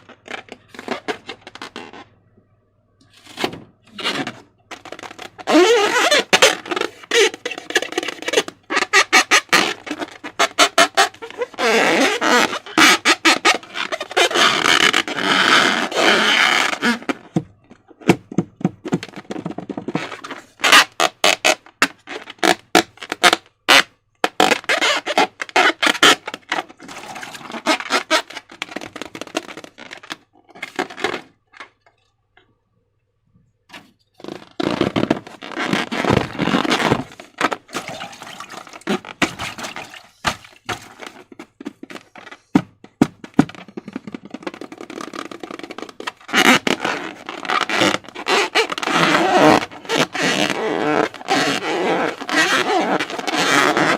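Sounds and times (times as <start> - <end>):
slime squelching and popping: 37.7 - 41.0.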